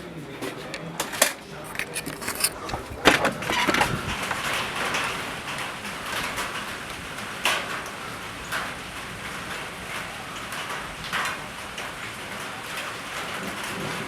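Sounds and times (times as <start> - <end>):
steady rain: 3.9 - 14.0.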